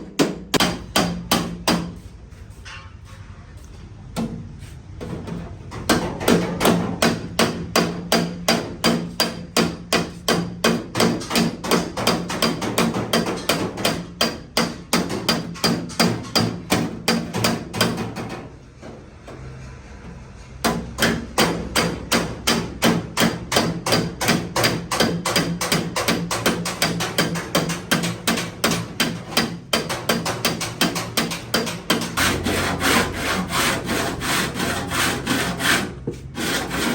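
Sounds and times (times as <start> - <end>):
hammer blows on sheet metal: 0.0 - 3.1.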